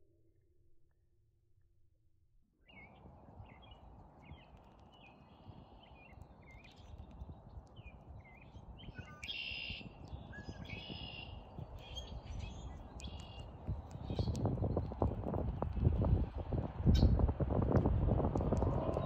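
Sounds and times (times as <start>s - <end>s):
small birds chirping: 2.7s - 17.2s
steady low rumble: 11.8s - 19.0s.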